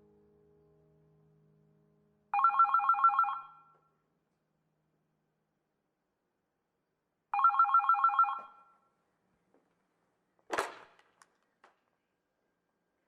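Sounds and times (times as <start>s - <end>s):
electronic telephone ring: 2.4s - 3.7s, 7.4s - 8.7s.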